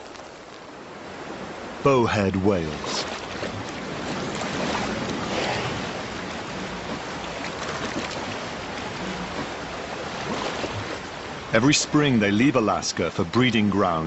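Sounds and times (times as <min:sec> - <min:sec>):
sea waves washing: 0:00.0 - 0:14.0.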